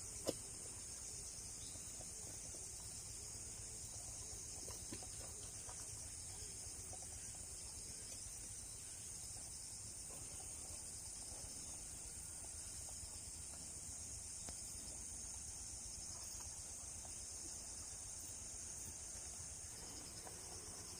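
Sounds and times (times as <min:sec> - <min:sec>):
insects trilling: 0:00.0 - 0:20.9
faint ticks: 0:12.3 - 0:15.5.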